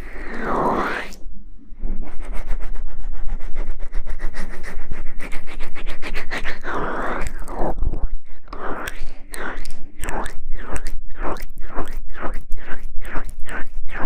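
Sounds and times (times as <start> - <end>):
rapid scratching strokes: 0.0 - 1.2, 1.8 - 14.0.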